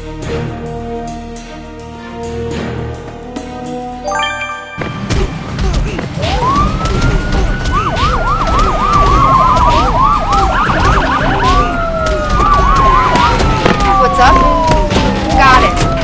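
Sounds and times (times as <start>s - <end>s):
siren wailing: 6.1s - 16.0s
siren yelping: 6.1s - 16.0s.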